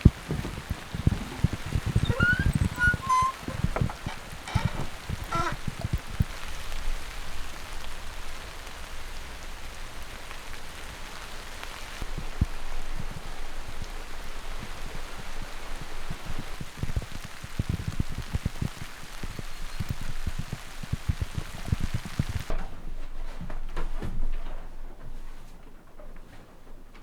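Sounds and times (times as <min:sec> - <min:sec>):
steady rain falling: 0:00.0 - 0:22.5.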